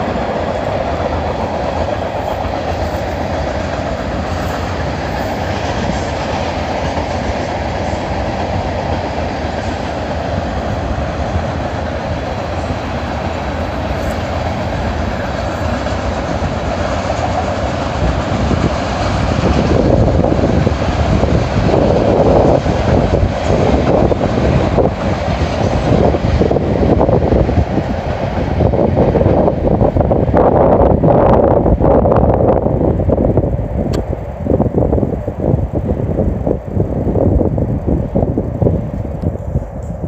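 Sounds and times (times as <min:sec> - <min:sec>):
freight train rumbling past: 0:00.0 - 0:40.0.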